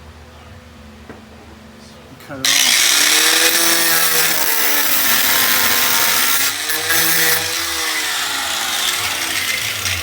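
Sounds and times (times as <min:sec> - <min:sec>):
cutoff tool grinding metal: 0:02.5 - 0:10.0.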